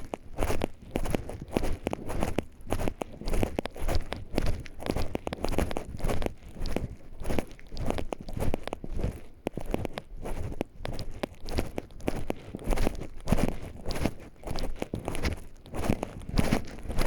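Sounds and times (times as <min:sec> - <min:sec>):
footsteps crunching on forest path: 0:00.0 - 0:17.0.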